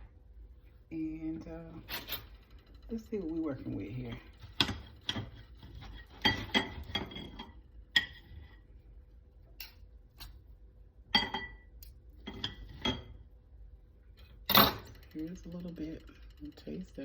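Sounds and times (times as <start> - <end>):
cutlery clinking against a dish: 4.6 - 8.2.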